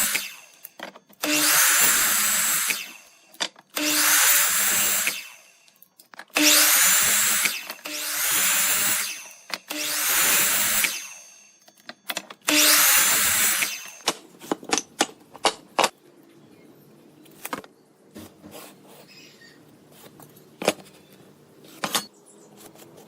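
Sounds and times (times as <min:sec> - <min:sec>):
handheld power tool burst: 0:00.0 - 0:05.6, 0:06.3 - 0:14.2
knocks and clicks of tools: 0:00.1 - 0:03.9, 0:05.0 - 0:16.0.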